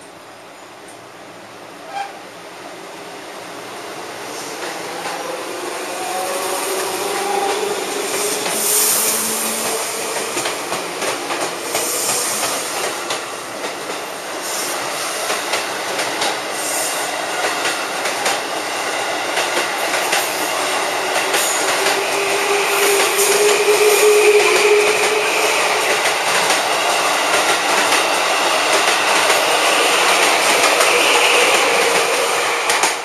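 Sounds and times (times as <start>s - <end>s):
high hissing bursts: 6.1s - 10.0s, 11.6s - 12.9s
train wheels clicking over rail joints: 7.1s - 18.6s, 19.2s - 33.0s.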